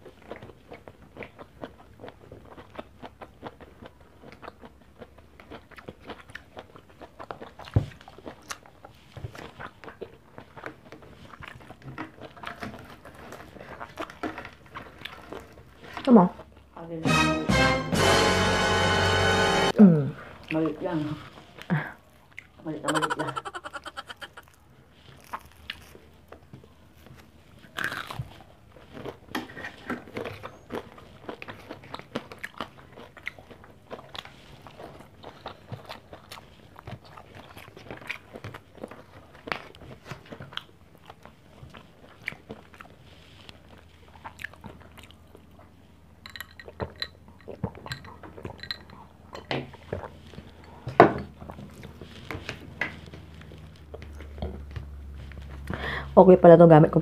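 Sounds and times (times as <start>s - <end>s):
crunchy food being chewed: 0.0s - 16.8s, 20.2s - 55.9s
mouth noises: 22.8s - 24.6s.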